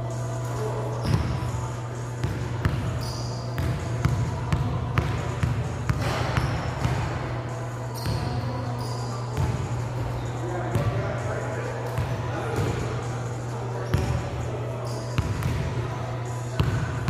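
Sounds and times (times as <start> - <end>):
basketball bouncing on court: 3.6 - 7.1.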